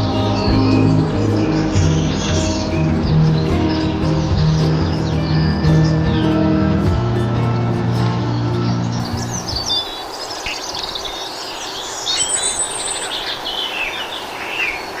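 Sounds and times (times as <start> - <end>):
music: 0.0 - 10.0
small birds chirping: 0.0 - 15.0
steady background hiss: 0.0 - 15.0.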